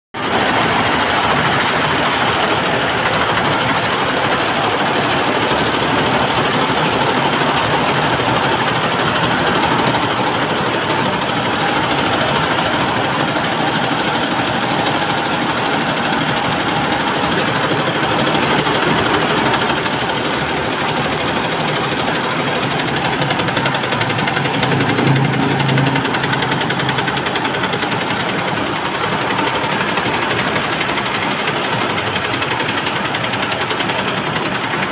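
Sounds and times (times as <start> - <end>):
embroidery machine clattering: 0.2 - 34.9.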